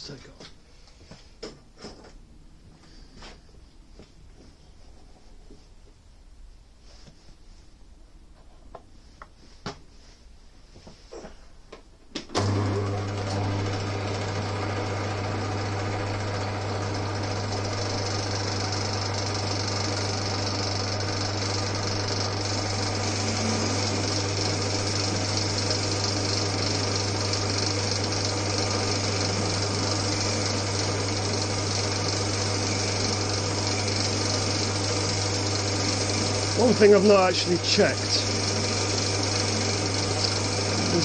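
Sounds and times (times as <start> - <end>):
electric motor humming: 12.4 - 41.0
metal lathe running: 12.4 - 41.0
bright hiss of cutting tool: 22.4 - 28.3, 28.9 - 34.7.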